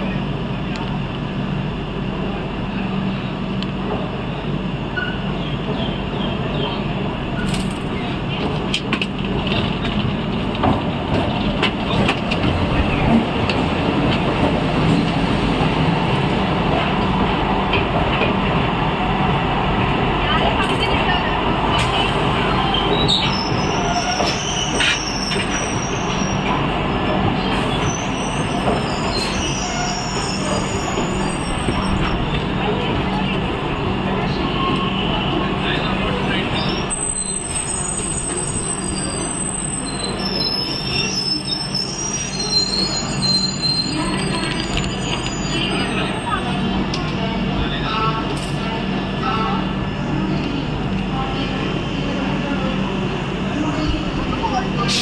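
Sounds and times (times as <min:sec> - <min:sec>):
train wheels rumbling on rail: 0:00.0 - 0:55.0
high wheel squeal: 0:22.5 - 0:26.6, 0:27.4 - 0:32.2, 0:36.5 - 0:46.6.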